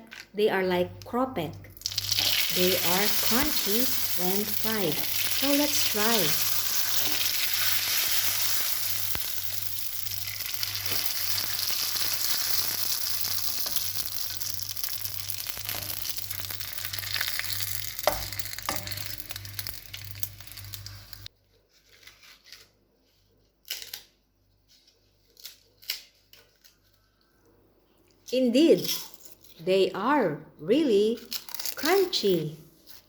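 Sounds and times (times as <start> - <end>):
rice paper sizzling in hot oil: 1.8 - 21.3
crisp crackles of fried rice paper: 1.8 - 27.2, 31.2 - 33.0.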